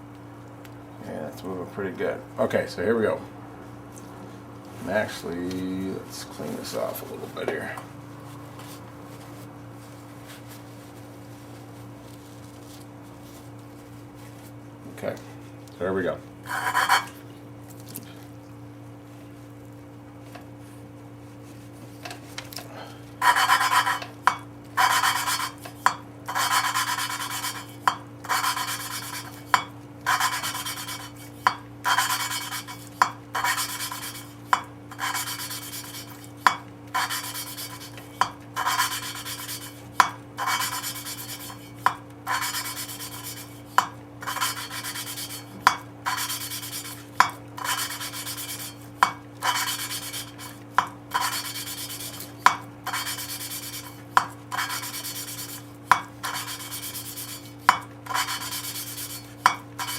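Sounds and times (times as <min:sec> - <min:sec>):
steady low hum: 0:00.0 - 0:59.9
valve lapping gritty rasp: 0:16.4 - 0:17.2, 0:23.2 - 0:59.9.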